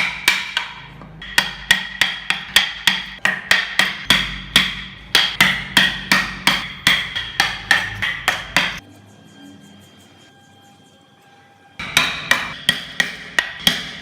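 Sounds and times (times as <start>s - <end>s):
hammer striking chisel into wood: 0.0s - 8.8s, 11.8s - 14.0s.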